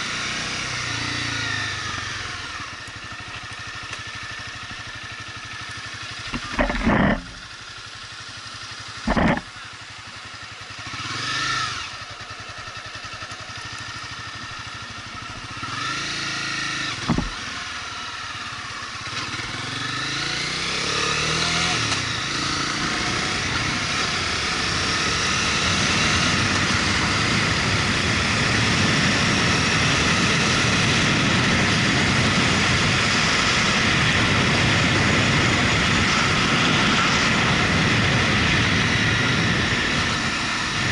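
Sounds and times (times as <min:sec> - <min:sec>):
motorcycle engine: 0:00.0 - 0:40.9
wind: 0:00.0 - 0:40.9.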